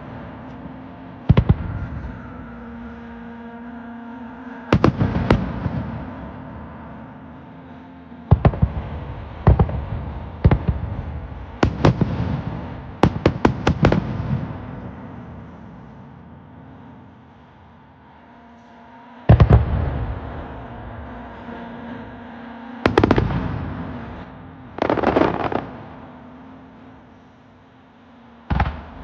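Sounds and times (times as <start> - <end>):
firework bangs: 11.6 - 14.8, 22.9 - 24.0, 24.8 - 26.1, 28.5 - 29.0.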